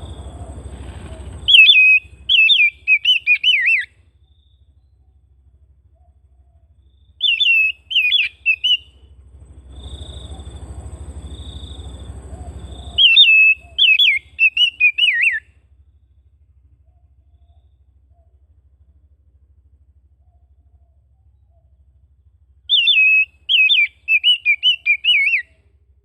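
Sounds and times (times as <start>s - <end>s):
soft rushing noise: 0.0s - 2.3s
bird singing warbling notes: 0.0s - 5.3s, 5.9s - 9.1s, 9.7s - 15.4s, 22.7s - 25.5s
low hum: 0.0s - 26.0s.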